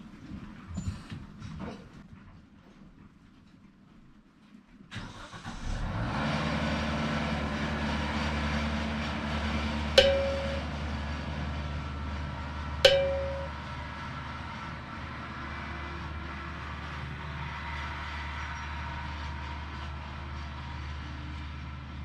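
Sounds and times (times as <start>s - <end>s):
engine running: 5.2s - 22.0s
sharp metallic clanks: 10.0s - 10.8s, 12.8s - 13.6s.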